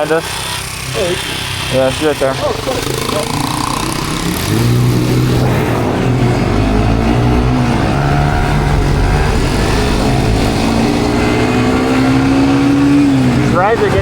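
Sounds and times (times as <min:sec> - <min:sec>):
motorbike engine running: 0:00.0 - 0:14.0.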